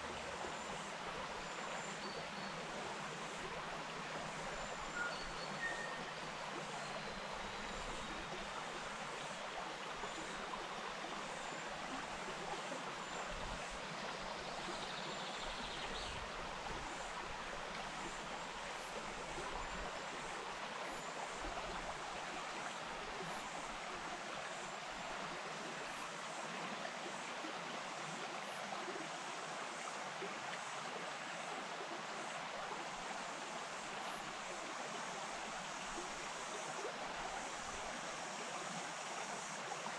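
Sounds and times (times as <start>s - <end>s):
stream running over rocks: 0.0s - 39.9s
faint bird chirp: 4.6s - 8.3s.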